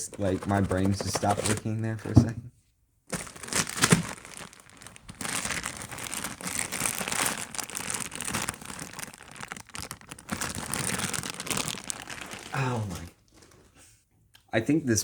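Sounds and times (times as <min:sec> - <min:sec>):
packaging crinkling and rustling: 0:00.0 - 0:02.3, 0:03.1 - 0:13.8.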